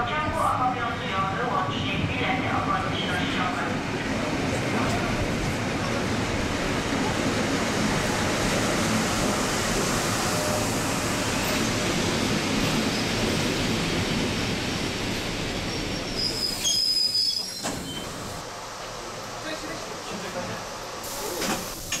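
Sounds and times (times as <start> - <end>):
train wheels rumbling on rail: 1.8 - 22.0
high-pitched wheel squeal: 16.0 - 18.2.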